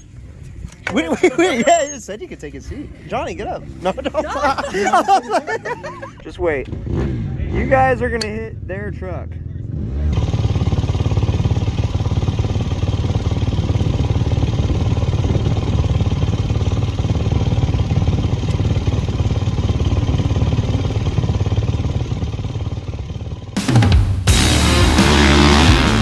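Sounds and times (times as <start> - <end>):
vehicle engine idling: 5.9 - 26.0.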